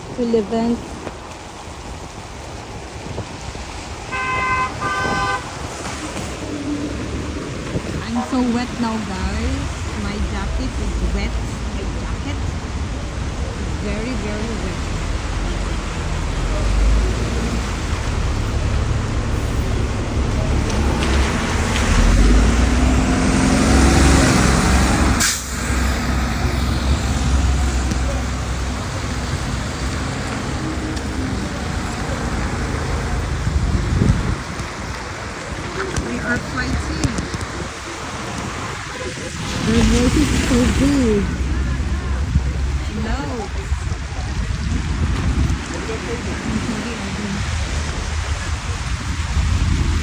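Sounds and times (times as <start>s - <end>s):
traffic noise: 0.0s - 50.0s
vehicle horn honking: 4.1s - 5.8s
scooter engine hum: 25.8s - 50.0s.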